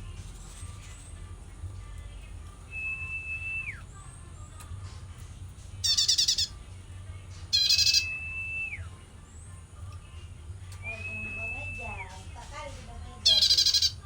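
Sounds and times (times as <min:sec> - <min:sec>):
bird harsh chattering calls: 0:05.8 - 0:06.6, 0:07.6 - 0:08.1, 0:13.2 - 0:14.0.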